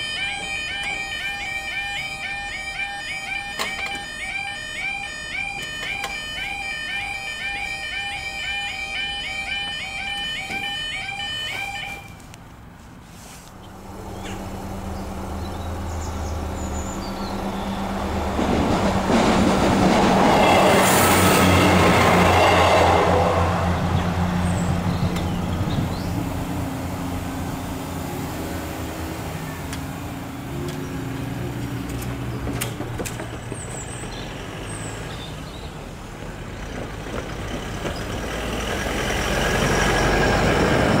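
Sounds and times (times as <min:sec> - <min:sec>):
train passing: 0:07.0 - 0:41.0
car driving over crossing: 0:13.6 - 0:41.0.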